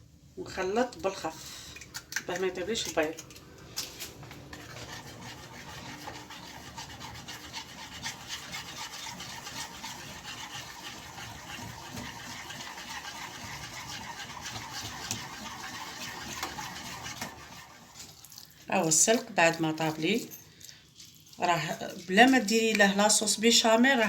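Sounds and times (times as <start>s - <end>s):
utensil scraping a pan: 4.1s - 20.2s.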